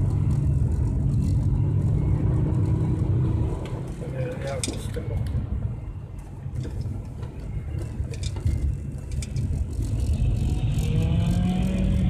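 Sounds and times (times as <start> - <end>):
car engine accelerating: 9.6 - 12.0.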